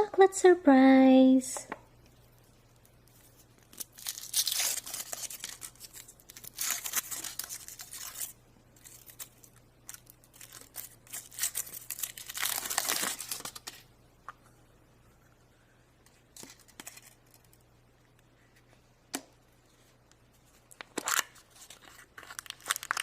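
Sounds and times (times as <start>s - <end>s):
candy wrapper tearing and crinkling: 2.8s - 13.9s, 16.3s - 17.6s, 20.7s - 23.0s.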